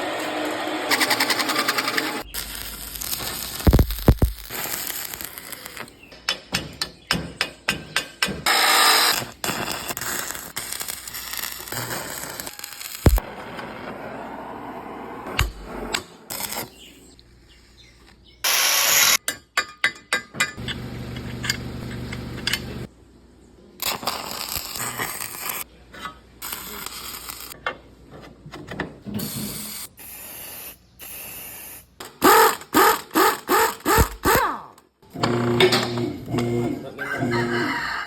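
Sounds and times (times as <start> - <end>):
loud hiss: 29.2 - 32.0
rhythmic tool strokes: 32.2 - 34.4.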